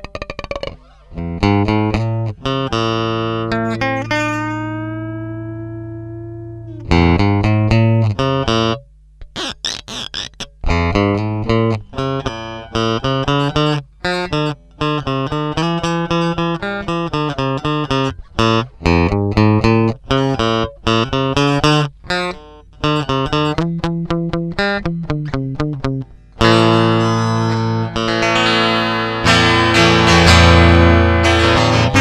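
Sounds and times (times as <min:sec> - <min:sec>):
electric guitar picked notes: 0:00.0 - 0:32.0.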